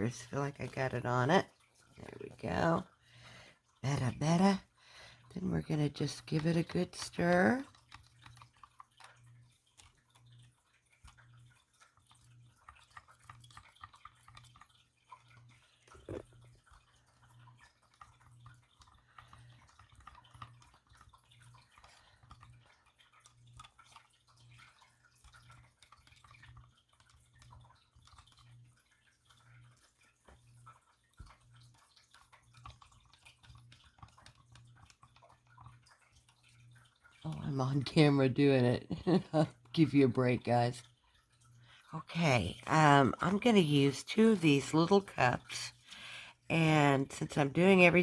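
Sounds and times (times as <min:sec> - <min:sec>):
low steady hum: 0:00.0 - 0:48.0
stick stirring paint in a cup: 0:05.2 - 0:41.5.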